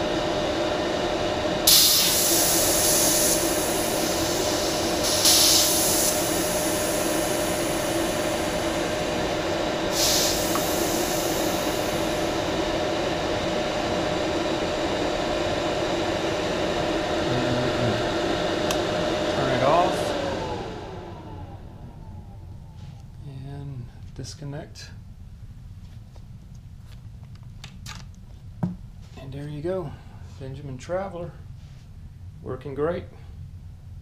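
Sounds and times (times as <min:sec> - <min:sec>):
compressor running: 0:00.0 - 0:24.1
hissing air bursts: 0:01.6 - 0:12.8.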